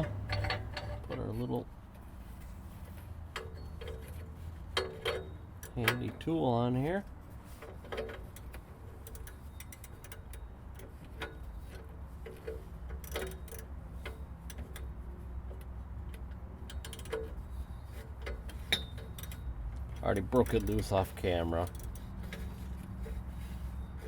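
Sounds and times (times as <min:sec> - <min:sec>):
ratchet clicking: 0:07.9 - 0:11.4, 0:12.2 - 0:14.9, 0:16.6 - 0:19.5, 0:20.3 - 0:22.6.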